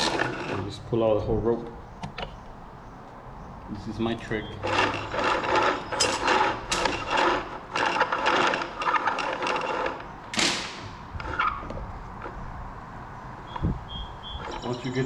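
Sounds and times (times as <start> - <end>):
cord scraping through window frame: 0.0 - 0.8, 4.5 - 10.2, 11.1 - 11.8.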